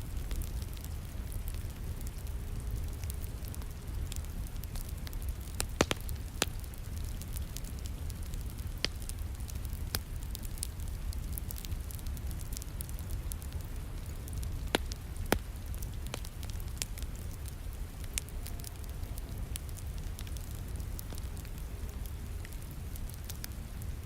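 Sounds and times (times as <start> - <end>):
wood fire crackling: 0.0 - 24.0
sharp pops of fire: 0.2 - 17.4.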